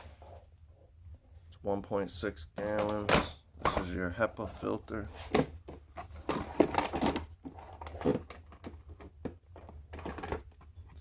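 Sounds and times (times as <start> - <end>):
plastic parts clicking and rattling: 6.1 - 11.0.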